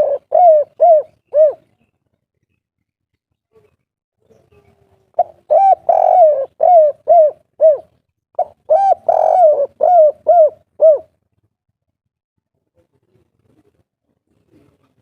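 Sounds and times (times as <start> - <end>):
dove cooing: 0.0 - 1.7, 5.1 - 11.1.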